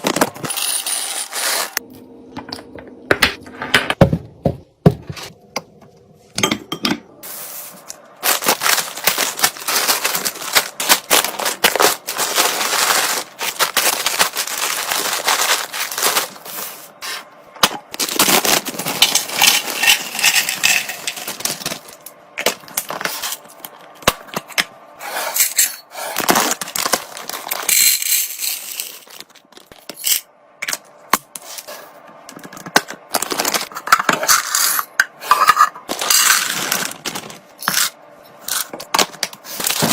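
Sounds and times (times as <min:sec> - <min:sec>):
packaging crinkling: 0:07.9 - 0:17.0, 0:17.9 - 0:23.5, 0:26.2 - 0:27.7, 0:35.9 - 0:37.8.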